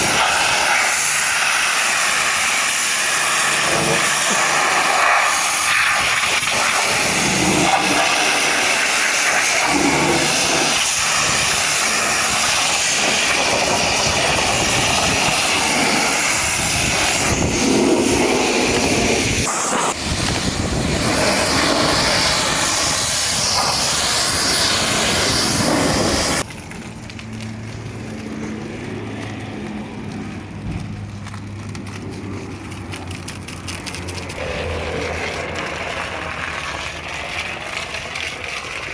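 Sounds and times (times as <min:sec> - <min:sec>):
water jet spraying hiss: 0:00.0 - 0:26.5.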